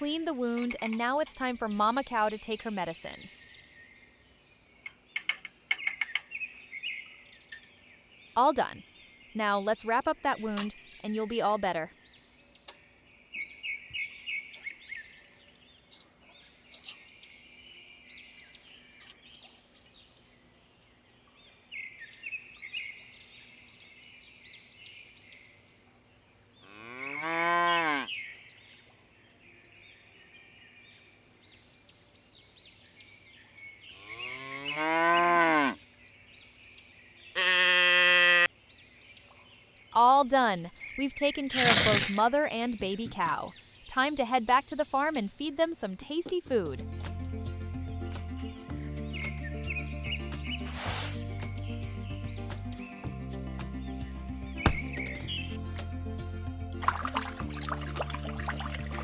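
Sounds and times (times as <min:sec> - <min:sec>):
small birds chirping: 0:00.0 - 0:27.3, 0:27.9 - 0:34.8, 0:40.7 - 0:55.8
cattle mooing: 0:26.6 - 0:28.1, 0:37.4 - 0:38.5.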